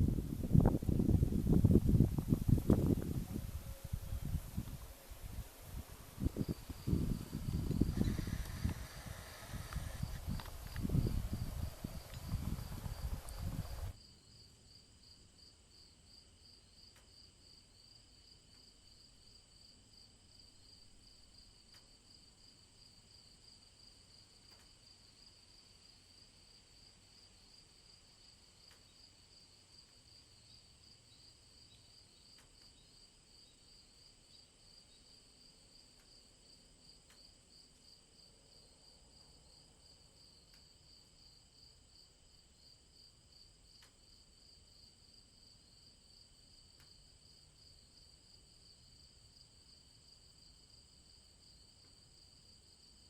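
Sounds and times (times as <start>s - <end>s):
crickets chirping: 0.0s - 53.0s
faint ticks: 4.6s - 14.0s, 16.9s - 17.2s, 21.4s - 22.0s, 24.2s - 25.0s, 28.6s - 29.0s, 32.2s - 32.8s, 35.5s - 37.7s, 39.9s - 40.9s, 43.6s - 44.2s, 46.6s - 47.2s.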